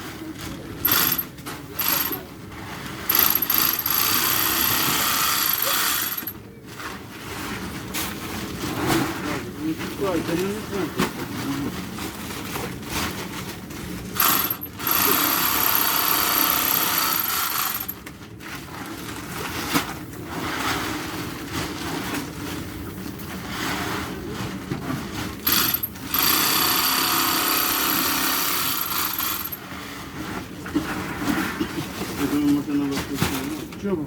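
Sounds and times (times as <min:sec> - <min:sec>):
sewing machine whining: 0:00.8 - 0:02.2, 0:03.1 - 0:06.4, 0:14.2 - 0:18.0, 0:25.4 - 0:29.6.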